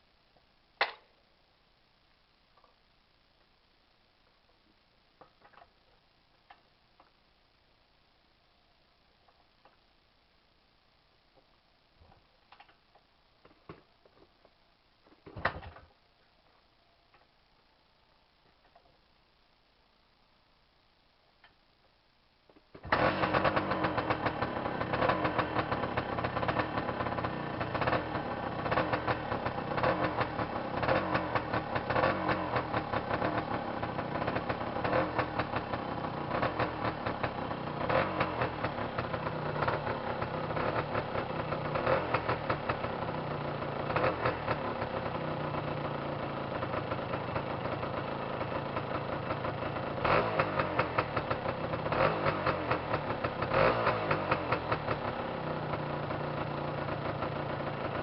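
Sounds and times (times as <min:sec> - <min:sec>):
two-stroke engine starting and running: 0:22.8 - 0:58.0.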